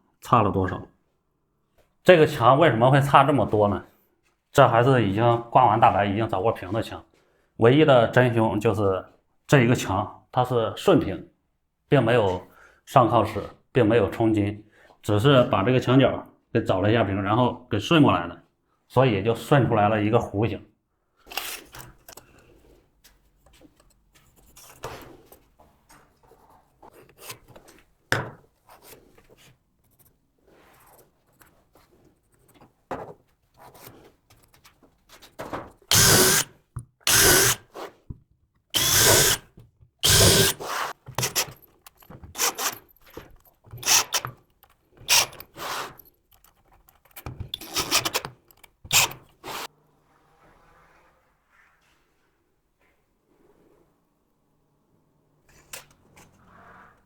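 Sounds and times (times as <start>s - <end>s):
woodworking tool on timber: 35.9s - 36.5s, 37.1s - 38.1s, 38.8s - 49.7s.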